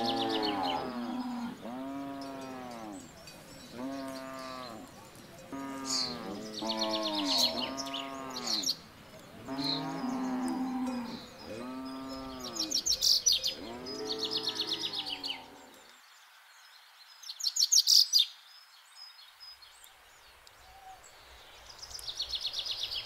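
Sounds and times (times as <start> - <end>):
cows mooing: 0.0 - 8.7, 9.4 - 15.8.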